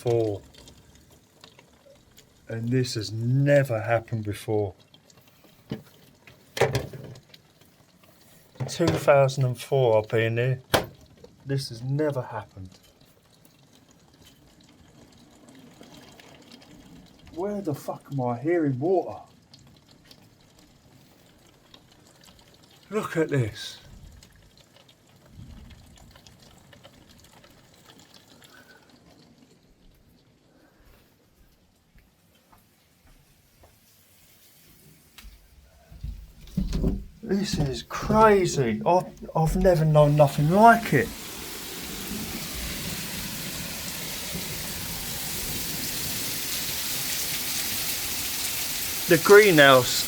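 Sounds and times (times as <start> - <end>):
rainwater dripping: 0.0 - 50.0
heavy rain pouring: 22.8 - 29.7, 36.0 - 50.0
soft wash of water: 23.8 - 50.0.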